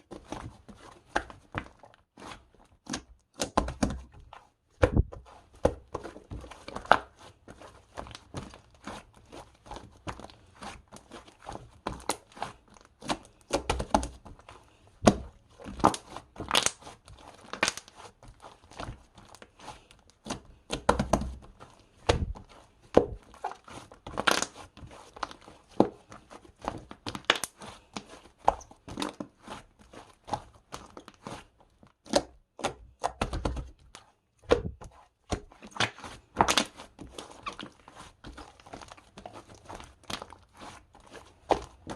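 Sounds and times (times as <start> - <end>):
taps and thuds: 4.8 - 5.8
crinkling and tearing: 6.1 - 20.6, 21.6 - 28.2, 35.6 - 41.9.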